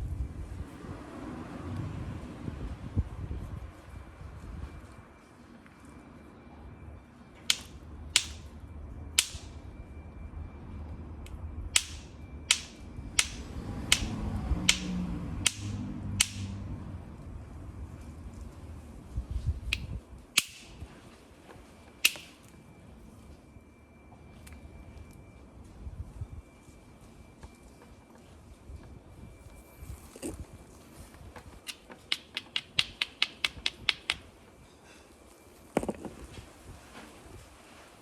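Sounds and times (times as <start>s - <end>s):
hammer striking flint: 7.5s - 8.5s, 9.2s - 9.6s, 11.8s - 16.6s, 20.4s - 20.8s, 22.0s - 22.4s, 31.7s - 34.2s.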